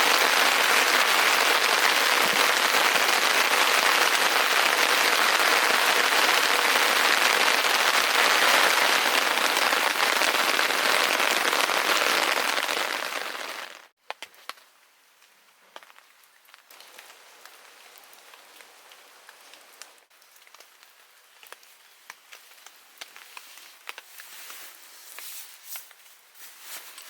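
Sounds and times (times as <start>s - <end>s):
light crackles and ticks: 14.0s - 26.2s
faint steady hiss: 14.0s - 27.0s.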